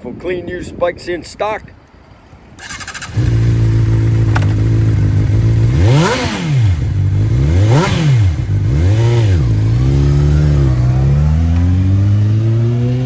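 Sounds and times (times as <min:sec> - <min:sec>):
starter motor cranking: 0:02.6 - 0:03.6
motorcycle engine idling and revving: 0:02.6 - 0:13.0.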